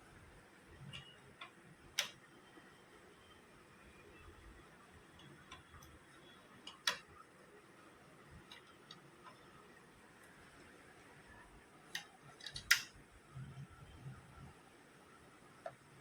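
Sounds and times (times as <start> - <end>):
plastic parts clicking: 0.9 - 2.2, 6.6 - 7.1, 11.9 - 13.0.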